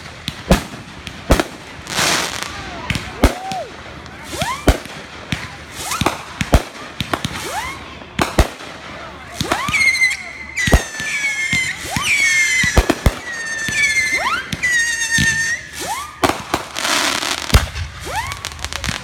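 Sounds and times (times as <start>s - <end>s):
fireworks bangs: 0.0s - 19.0s
long shrill firework whistles: 9.4s - 18.8s.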